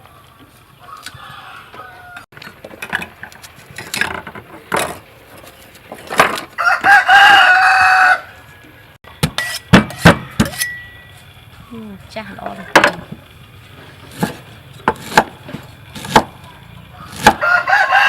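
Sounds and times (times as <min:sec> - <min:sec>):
rooster crowing: 0:00.8 - 0:02.3, 0:06.6 - 0:08.7, 0:16.9 - 0:18.0.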